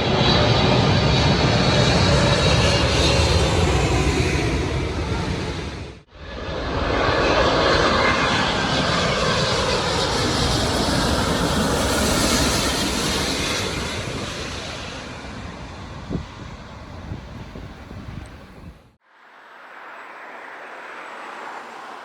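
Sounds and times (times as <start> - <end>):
jet airliner engine noise: 0.0 - 19.0, 19.7 - 22.0.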